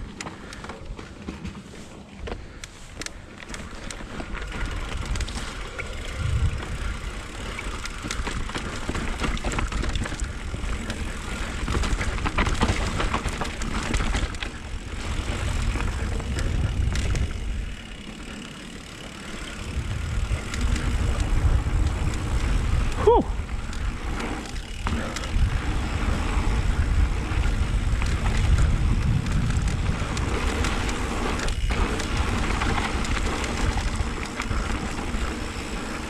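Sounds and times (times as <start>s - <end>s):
bike clicks and rattles: 0.0s - 36.0s
bike tyre noise on dirt: 0.0s - 36.0s
wind rumble on microphone: 4.4s - 7.5s, 8.1s - 17.8s, 19.6s - 35.5s.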